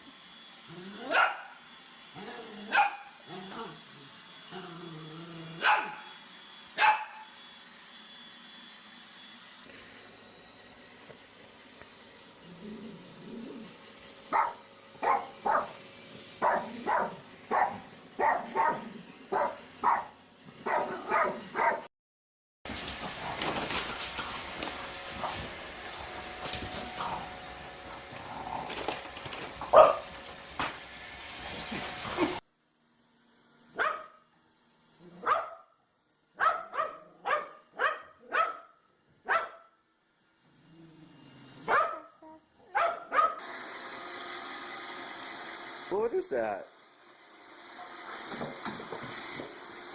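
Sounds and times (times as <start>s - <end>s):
dog barking: 1.1s - 1.6s, 2.7s - 3.2s, 5.6s - 6.1s, 6.8s - 7.3s, 14.3s - 15.8s, 16.4s - 21.9s, 29.7s - 30.1s, 33.8s - 34.2s, 35.2s - 35.7s, 36.4s - 39.7s, 41.7s - 42.1s, 42.7s - 43.4s.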